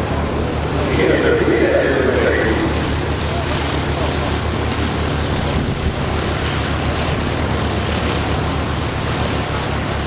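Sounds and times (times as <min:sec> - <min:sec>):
propeller airplane engine droning: 0:00.0 - 0:10.0.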